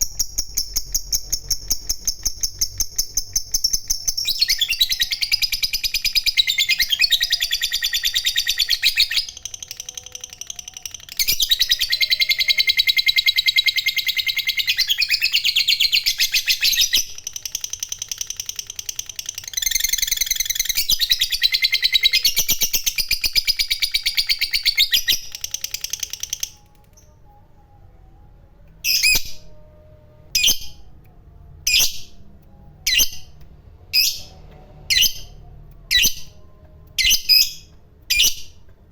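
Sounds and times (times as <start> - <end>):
lovebird sharp chirps: 28.8 - 29.6, 30.4 - 30.9, 31.7 - 38.6.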